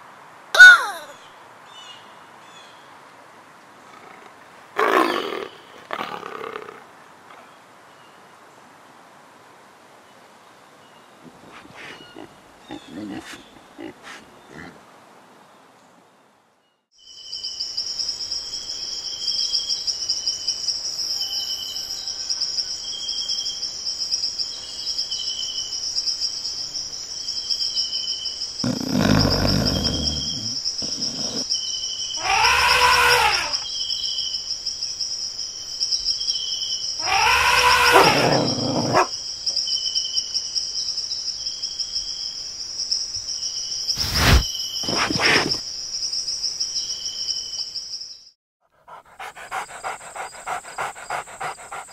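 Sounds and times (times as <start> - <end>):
wild animal cries: 0.6 - 1.2, 3.9 - 6.8, 28.6 - 31.4, 32.2 - 33.6, 37.0 - 39.1, 48.9 - 51.9
short insect chirp: 16.6 - 48.3
high insect drone: 17.0 - 47.9, 49.0 - 51.9.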